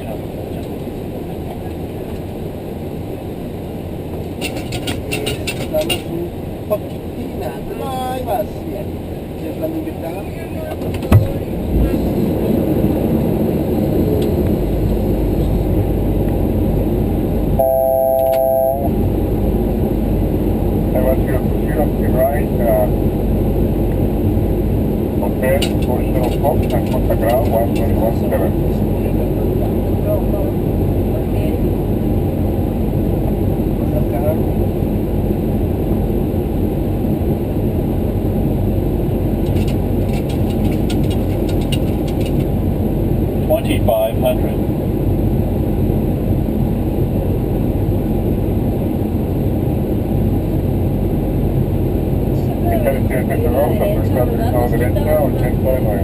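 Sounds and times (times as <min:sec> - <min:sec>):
low engine and airframe rumble: 0:00.0 - 0:56.0
multi-pitch steady tone: 0:17.6 - 0:19.4.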